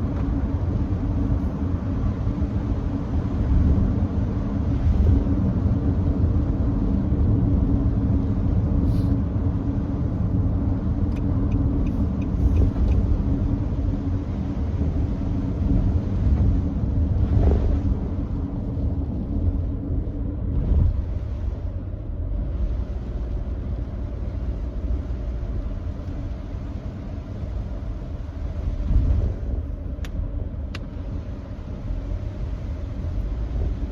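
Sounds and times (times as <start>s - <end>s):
low road rumble: 0.0s - 33.9s
tyres hissing on wet road: 8.8s - 9.4s.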